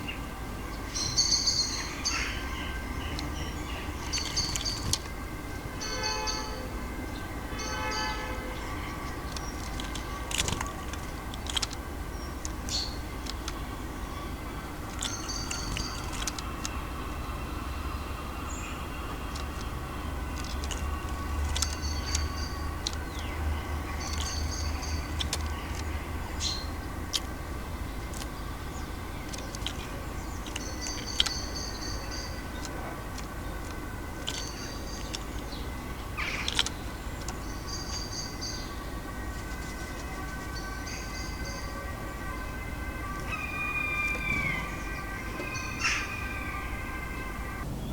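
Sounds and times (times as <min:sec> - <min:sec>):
city traffic rumble: 0:00.0 - 0:47.9
songbird calling: 0:00.0 - 0:47.9
sharp clicks: 0:09.2 - 0:13.8, 0:14.8 - 0:16.8, 0:19.2 - 0:27.4, 0:28.0 - 0:38.4.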